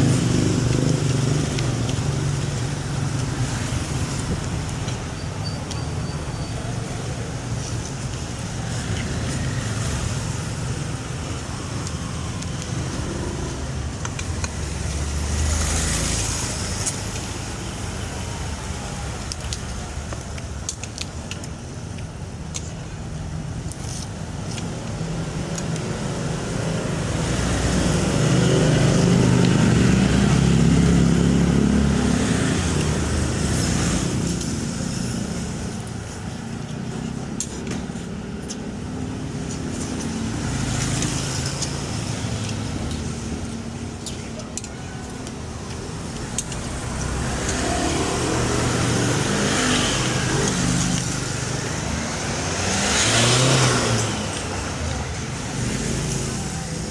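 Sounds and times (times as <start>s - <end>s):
road traffic passing: 0.0s - 56.9s.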